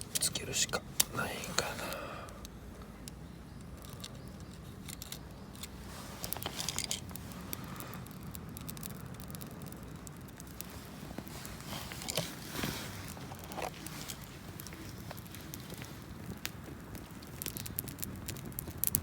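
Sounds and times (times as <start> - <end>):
small clicks: 2.3 - 12.3, 13.3 - 19.0
camping gear rustling: 3.7 - 8.1, 10.5 - 18.2.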